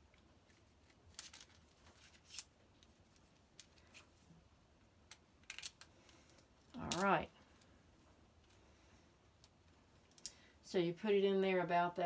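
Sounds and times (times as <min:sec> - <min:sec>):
small hard parts clicking: 0:05.1 - 0:07.7.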